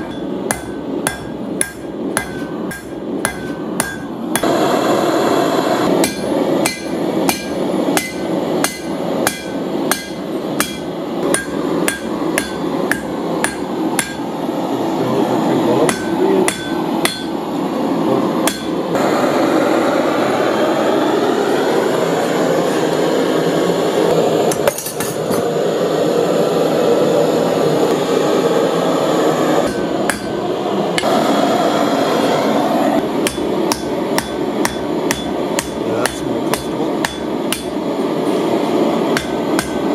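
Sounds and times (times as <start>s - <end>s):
hammer striking steel on anvil: 0.0s - 4.7s, 5.9s - 14.3s, 15.9s - 17.5s, 18.4s - 19.0s, 24.5s - 25.5s, 29.6s - 30.4s, 33.0s - 38.5s, 39.1s - 39.9s
steady rushing noise: 0.0s - 39.9s.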